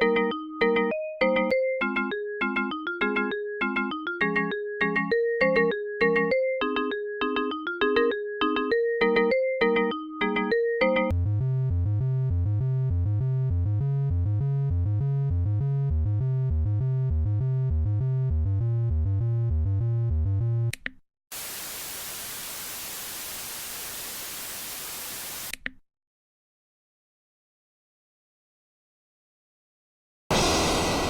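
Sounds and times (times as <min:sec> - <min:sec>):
bright mallet synth notes: 0:00.0 - 0:11.1
white-noise static: 0:21.3 - 0:25.5.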